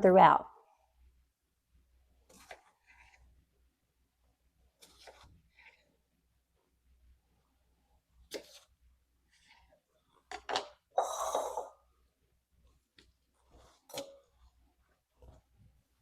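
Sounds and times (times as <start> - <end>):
knife scraping cutting board: 2.3 - 3.4, 4.8 - 5.9, 8.3 - 9.7.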